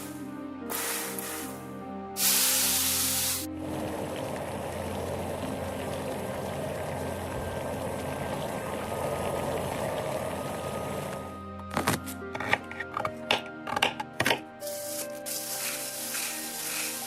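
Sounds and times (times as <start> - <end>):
eggs sizzling in hot oil: 2.2 - 11.2, 14.7 - 17.0.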